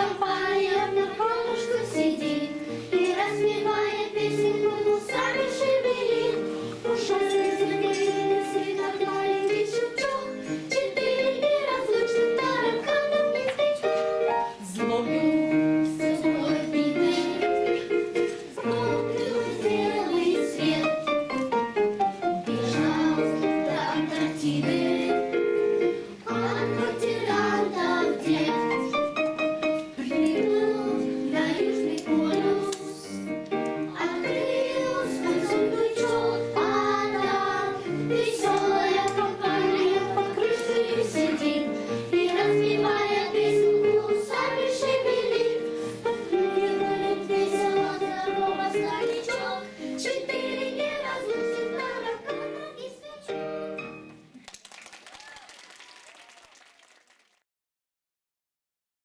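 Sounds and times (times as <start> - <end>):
instrumental accompaniment: 0.0 - 52.1
children's choir singing: 0.0 - 54.1.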